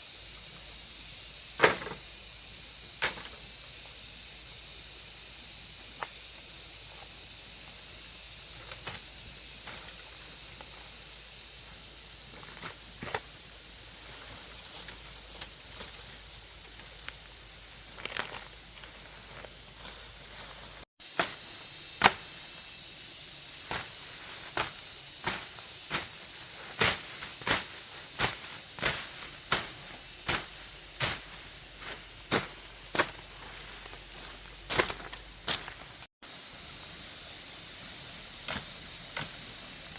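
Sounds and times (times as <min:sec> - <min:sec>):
insects chirring: 0:00.0 - 0:39.9
sharp tool strikes: 0:21.1 - 0:21.4, 0:22.0 - 0:22.4.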